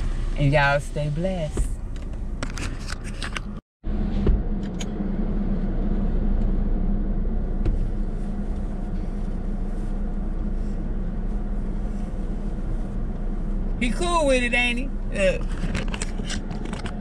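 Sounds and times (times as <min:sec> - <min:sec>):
car engine idling: 0:04.6 - 0:17.0.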